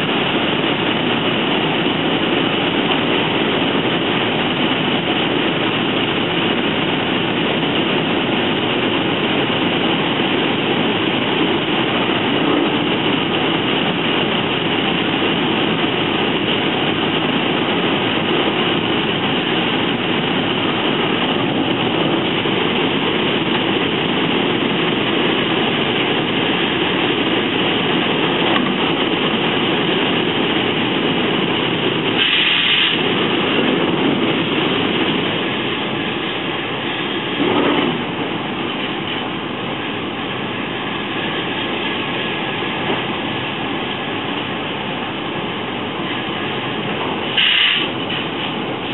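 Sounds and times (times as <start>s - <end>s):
train wheels rumbling and rattling: 0.0s - 48.9s
high-pitched hiss: 32.2s - 33.0s, 47.3s - 48.0s.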